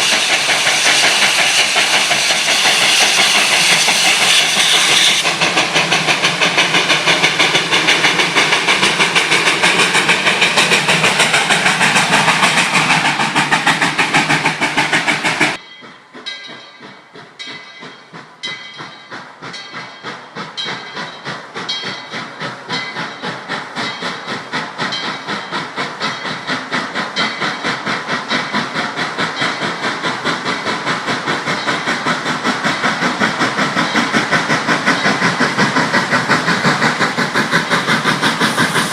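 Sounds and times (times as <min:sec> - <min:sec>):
steam hiss: 0:00.0 - 0:38.9
steam locomotive chuffing: 0:00.0 - 0:38.9.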